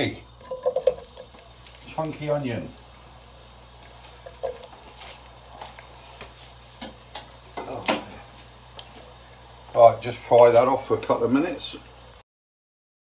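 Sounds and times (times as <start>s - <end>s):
onion frying in oil: 0.0s - 12.2s
spitting oil pops: 0.4s - 1.6s, 3.8s - 9.1s.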